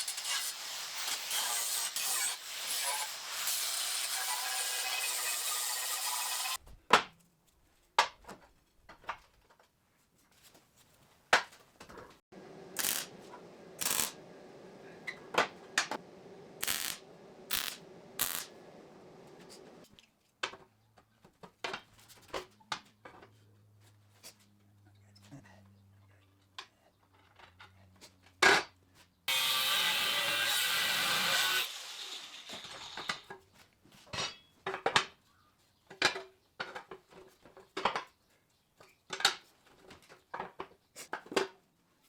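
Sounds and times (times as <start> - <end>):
hissing power tool: 12.4 - 19.8.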